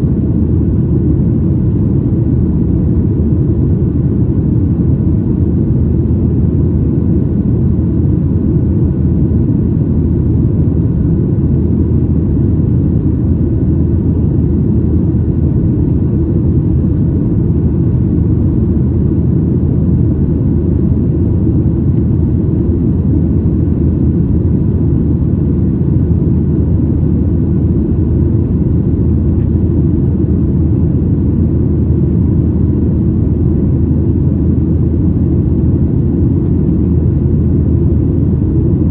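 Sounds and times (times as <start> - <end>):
jet engine rumble in cabin: 0.0 - 38.9.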